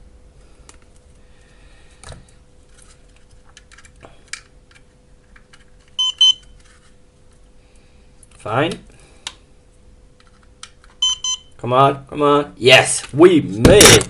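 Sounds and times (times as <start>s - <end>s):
electronic beeps: 6.0s - 6.4s, 11.0s - 11.5s.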